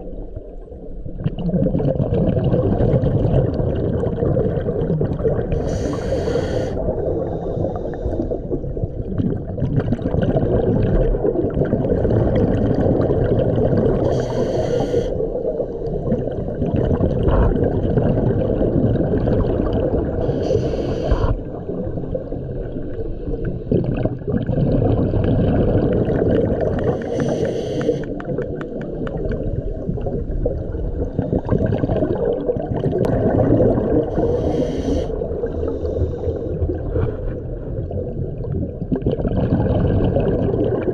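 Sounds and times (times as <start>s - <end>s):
underwater bubble rumble: 0.0s - 40.9s
regulator hiss: 5.6s - 6.8s, 14.1s - 15.1s, 20.3s - 21.3s, 27.0s - 28.1s, 34.2s - 35.1s.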